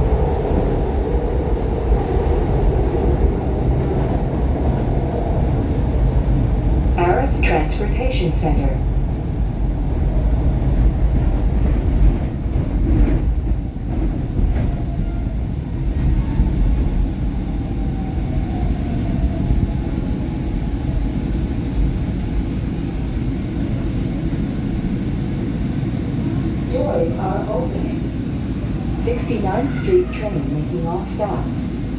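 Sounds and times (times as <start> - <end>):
subway car rumbling on rails: 0.0 - 31.9
faint train whine: 6.3 - 9.0, 16.0 - 31.9.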